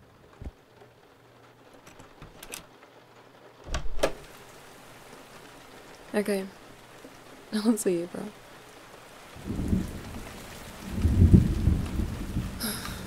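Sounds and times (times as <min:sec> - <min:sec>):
faint rain: 0:00.0 - 0:13.0
heavy thump with clicks: 0:03.6 - 0:04.3.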